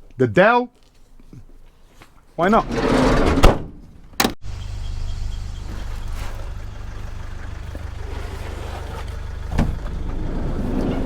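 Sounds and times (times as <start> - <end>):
vehicle engine running: 4.4 - 11.0.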